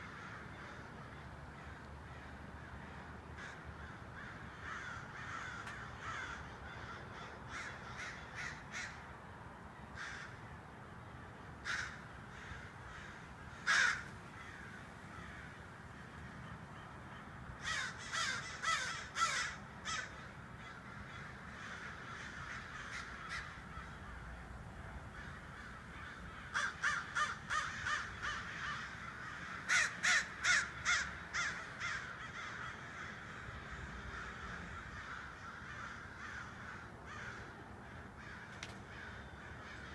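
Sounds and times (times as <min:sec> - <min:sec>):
loud harsh bird calls: 0:11.3 - 0:24.4, 0:25.1 - 0:39.9.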